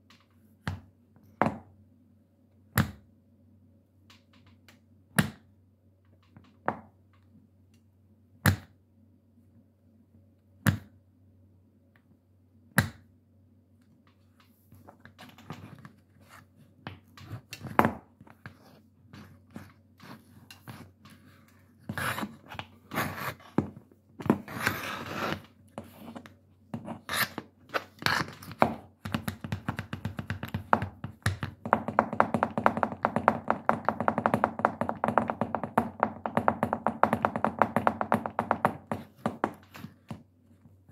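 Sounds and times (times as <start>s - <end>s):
shoe scuffs: 21.9s - 26.2s
tap shoes on hard floor: 23.0s - 25.9s, 27.7s - 40.3s.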